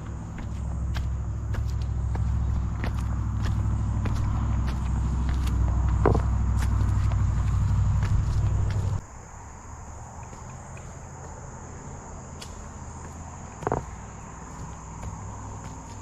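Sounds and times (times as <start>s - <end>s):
loud low rumble: 0.0s - 9.0s
insects chirring: 0.0s - 16.0s.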